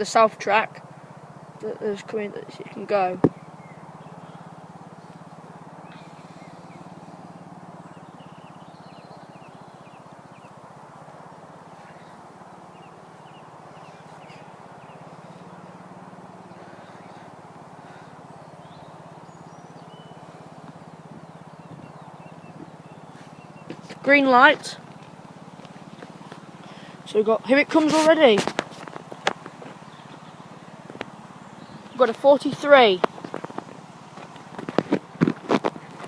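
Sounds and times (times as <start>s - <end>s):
small birds chirping: 0.0s - 36.0s
low hum: 0.8s - 27.5s.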